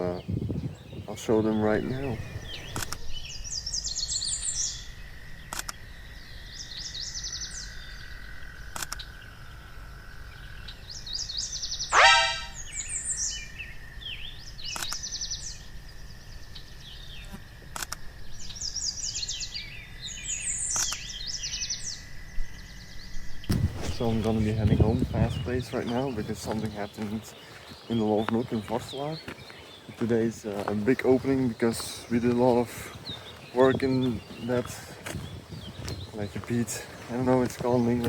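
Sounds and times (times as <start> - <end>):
songbirds twittering: 0.0 - 38.0
sharp clicks: 5.5 - 5.8.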